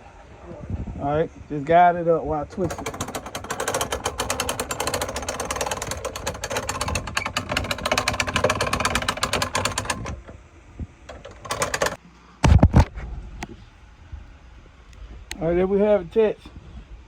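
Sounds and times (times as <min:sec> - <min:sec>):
hand-cranked winch ratcheting: 0:02.5 - 0:10.4, 0:11.1 - 0:12.0.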